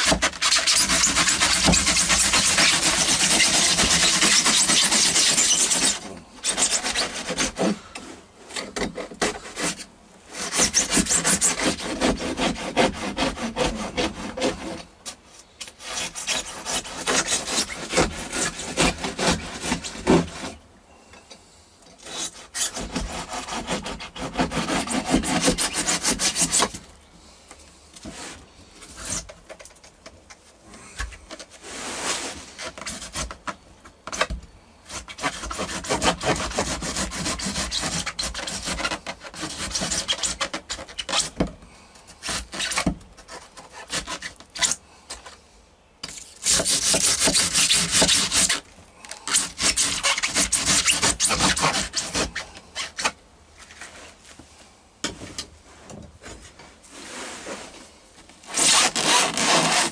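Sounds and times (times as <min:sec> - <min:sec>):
scraping and tearing foam: 0:00.0 - 0:20.6, 0:22.0 - 0:26.9, 0:28.0 - 0:29.6, 0:31.2 - 0:41.5, 0:42.1 - 0:45.2, 0:46.0 - 0:54.3, 0:56.2 - 0:59.9.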